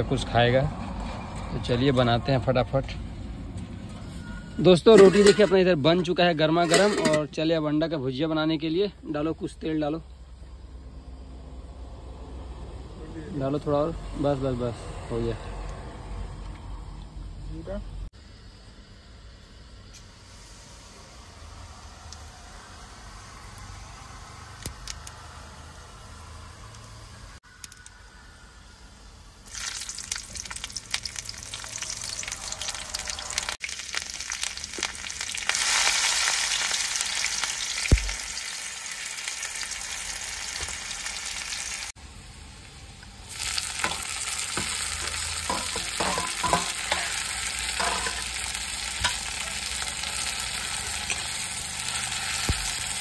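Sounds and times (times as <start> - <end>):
spatula scraping a pan: 4.9 - 7.2, 43.8 - 49.3
vegetables sizzling in hot oil: 29.3 - 53.0.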